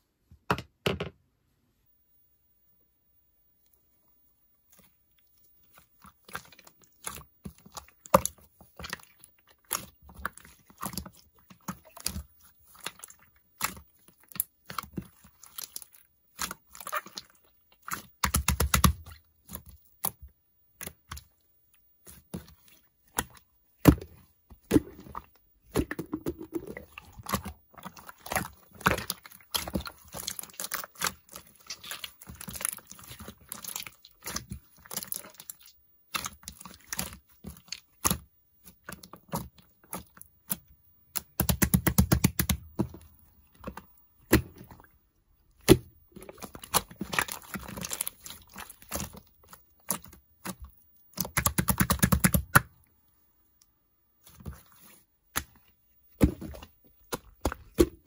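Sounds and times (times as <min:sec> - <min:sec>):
crunchy chewing: 0:42.6 - 0:51.4.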